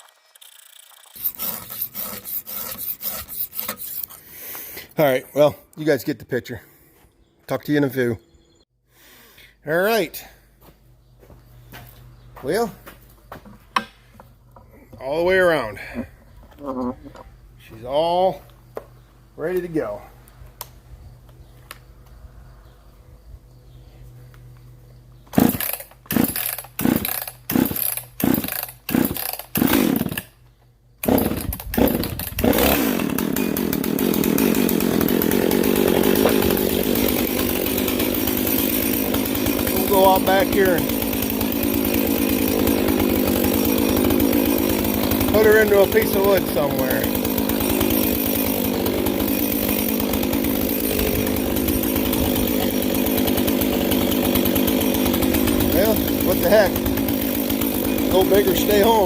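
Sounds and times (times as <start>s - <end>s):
chainsaw starter cord pulls: 0.0s - 4.2s, 25.3s - 30.4s, 31.0s - 59.0s
chainsaw engine running: 0.0s - 5.5s, 24.4s - 30.4s, 31.0s - 59.0s.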